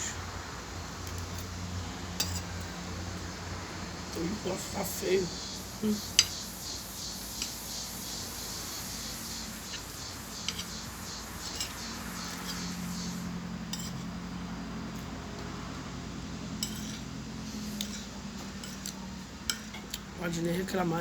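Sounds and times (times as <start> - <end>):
steady low hum: 0.0 - 21.0
cutlery clinking on a plate: 2.2 - 2.5, 13.7 - 14.1, 16.6 - 17.1, 17.8 - 20.0.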